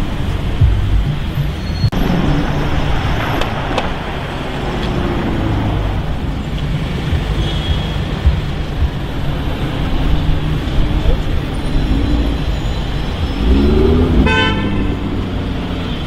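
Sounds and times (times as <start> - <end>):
road noise: 0.0 - 16.0
vehicle engines rumbling: 0.0 - 16.0.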